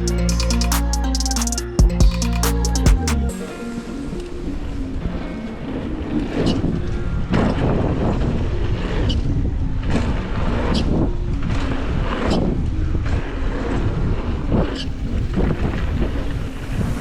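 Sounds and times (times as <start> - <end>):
wind rushing over microphone: 4.6 - 17.0.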